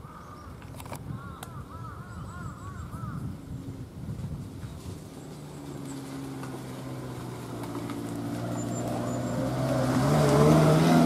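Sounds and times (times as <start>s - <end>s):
vehicle engine approaching: 3.6s - 11.0s.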